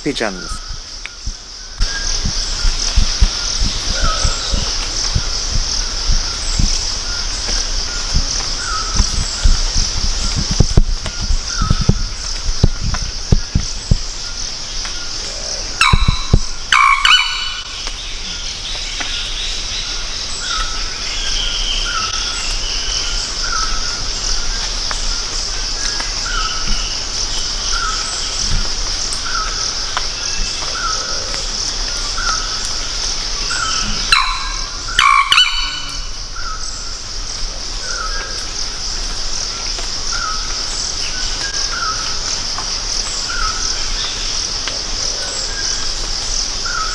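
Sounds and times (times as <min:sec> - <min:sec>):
loud harsh bird calls: 0:15.3 - 0:18.2, 0:33.5 - 0:36.7.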